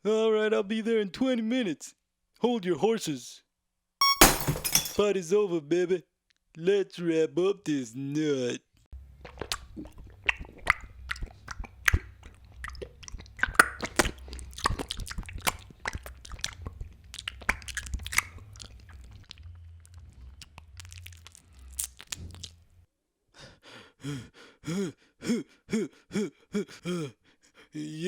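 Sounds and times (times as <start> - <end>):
chewing and crunching: 9.0 - 22.8.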